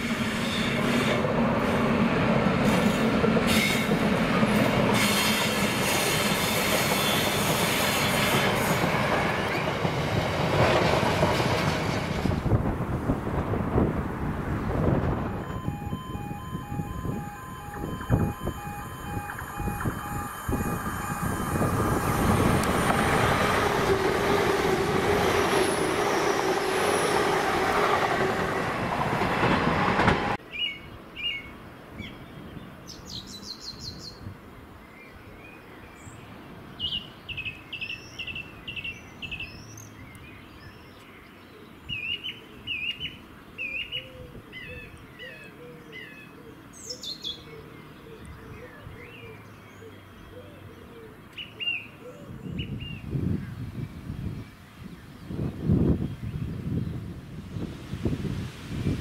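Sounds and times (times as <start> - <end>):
train running through at speed: 0.0 - 30.4.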